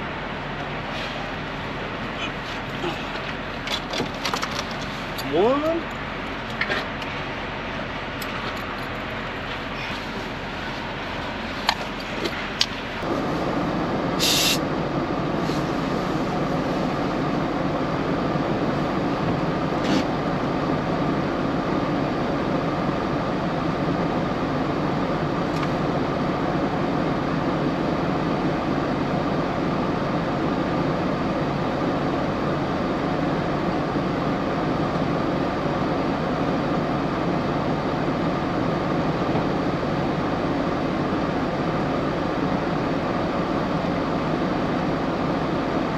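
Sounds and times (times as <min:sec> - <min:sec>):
semi-truck engine drone: 0:00.0 - 0:45.9
short hiss: 0:14.2 - 0:14.6.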